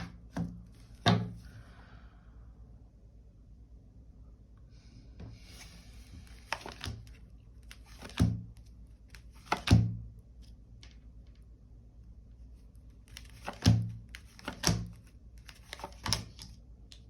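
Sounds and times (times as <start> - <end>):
cards rustling: 5.6 - 11.4, 12.4 - 17.0.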